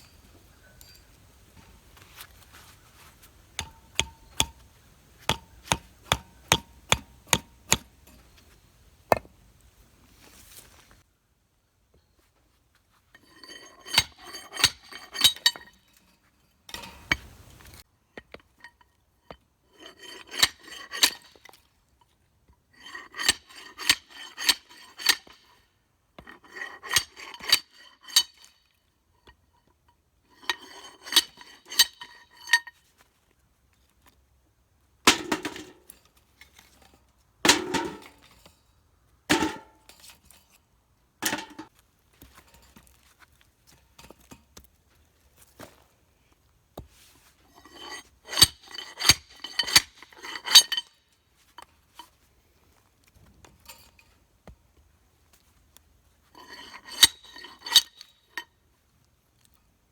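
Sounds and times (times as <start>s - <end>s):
steel tubing clanking on shaft: 3.6s - 8.3s, 47.6s - 50.9s, 56.4s - 58.5s.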